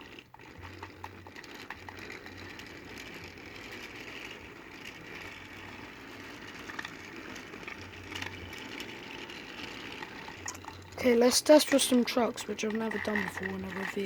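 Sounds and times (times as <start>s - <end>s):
toy train motor whirring: 0.0s - 14.0s
wheels clicking over track: 0.0s - 14.0s.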